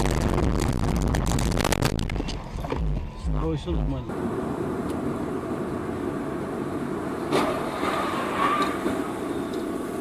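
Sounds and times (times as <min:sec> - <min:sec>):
moving vehicle rumbling: 0:00.0 - 0:10.0
faint squeal: 0:07.8 - 0:09.7.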